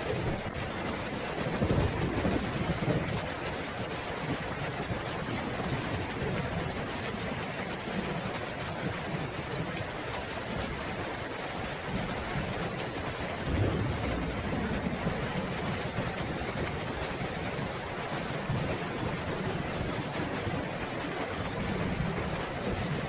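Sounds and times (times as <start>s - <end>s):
steady rain falling: 0.0s - 23.0s
thunder rumbling: 0.1s - 3.4s, 11.9s - 20.8s.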